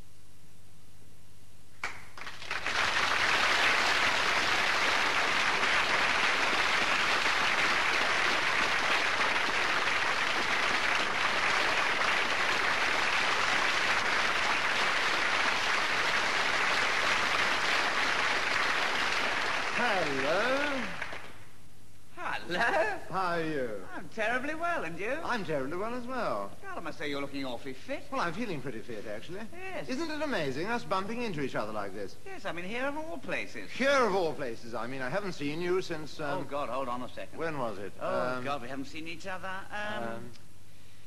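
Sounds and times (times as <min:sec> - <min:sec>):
audience applauding: 0:01.8 - 0:21.5.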